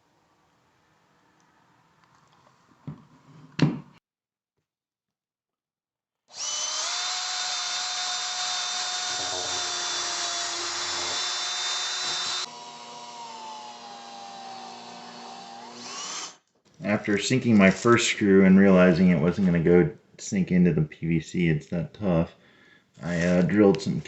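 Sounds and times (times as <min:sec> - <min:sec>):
power drill whining into plastic: 0:06.3 - 0:16.4.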